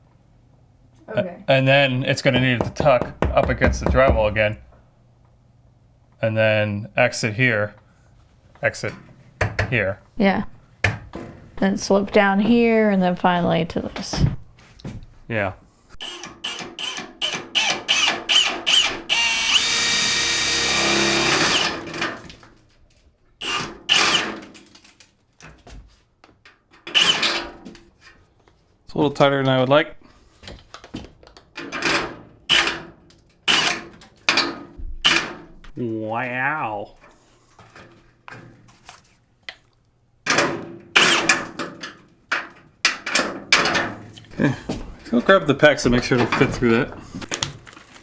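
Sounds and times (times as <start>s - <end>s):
loud knocks and clattering: 2.2s - 4.8s
power drill boring through wood: 16.0s - 22.0s, 23.4s - 24.4s, 27.0s - 27.3s, 41.0s - 41.3s.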